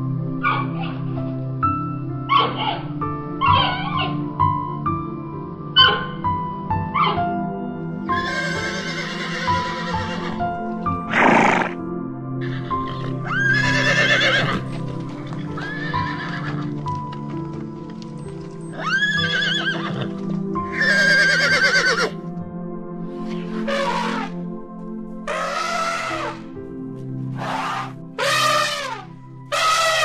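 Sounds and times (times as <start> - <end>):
background music: 0.0 - 30.0
horse whinnying: 8.1 - 10.4, 11.1 - 11.8, 12.4 - 14.7, 15.4 - 16.8, 18.7 - 22.2, 23.5 - 24.4, 25.3 - 26.4, 27.4 - 30.0.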